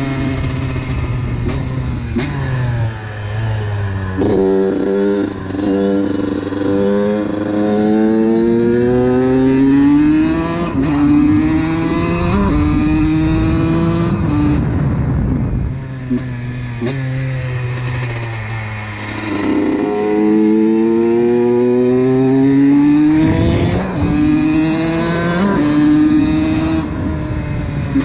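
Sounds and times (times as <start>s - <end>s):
two-stroke motorcycle engine revving: 0.0s - 14.8s, 15.9s - 28.0s.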